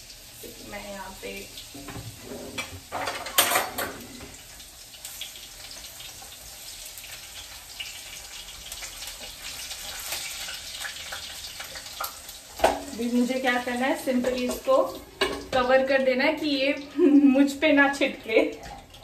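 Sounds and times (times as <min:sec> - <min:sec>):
potatoes sizzling in oil: 0:00.0 - 0:19.0
pan clatter: 0:01.8 - 0:04.3
wooden spatula scraping pan: 0:01.8 - 0:04.3.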